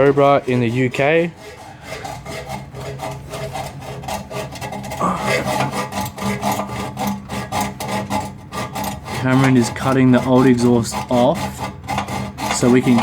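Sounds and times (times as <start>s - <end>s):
saw cutting metal pipe: 0.0s - 13.0s.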